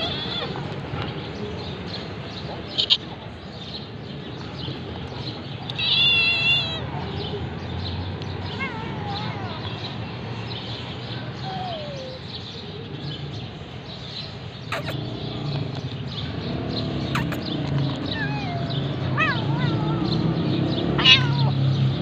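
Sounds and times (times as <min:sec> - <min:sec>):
kittens meowing: 0:00.0 - 0:00.6, 0:05.7 - 0:06.9, 0:08.4 - 0:10.0, 0:11.2 - 0:12.4, 0:14.7 - 0:15.0, 0:17.1 - 0:21.7.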